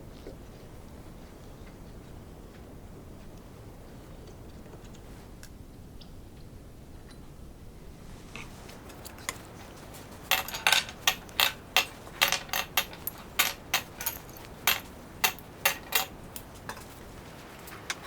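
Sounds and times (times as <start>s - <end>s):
metal hardware clinking: 10.3s - 16.9s.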